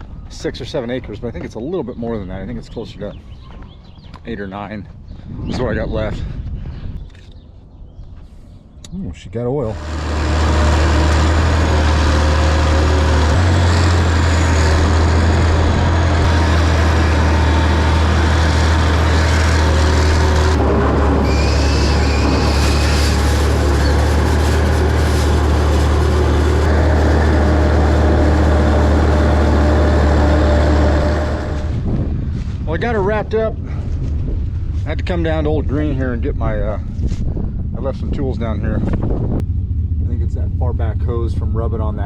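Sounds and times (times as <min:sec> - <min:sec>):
tractor engine droning: 0:09.6 - 0:33.7, 0:37.8 - 0:42.0.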